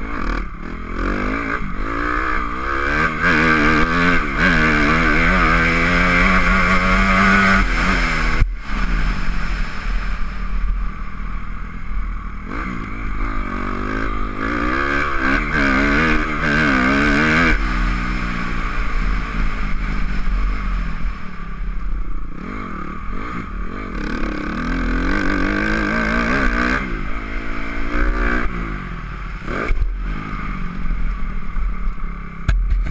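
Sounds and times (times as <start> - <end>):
dirt bike engine revving: 0.0 - 31.6
sharp knock: 32.4 - 32.9.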